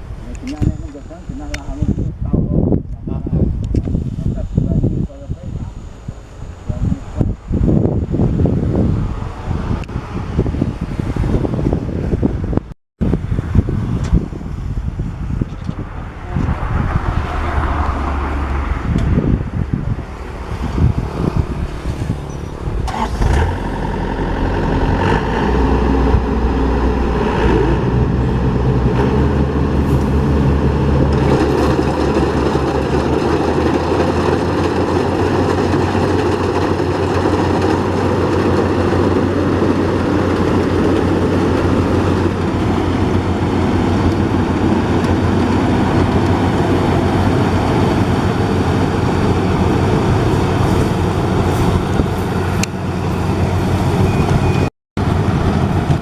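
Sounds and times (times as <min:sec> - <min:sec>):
combine harvester engine running: 0:13.2 - 0:56.0.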